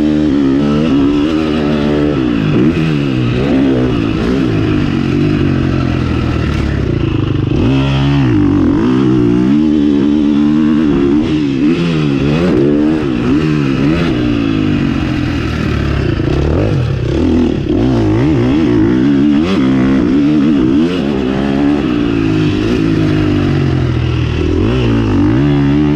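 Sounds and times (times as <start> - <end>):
motocross engine revving: 0.0 - 25.9.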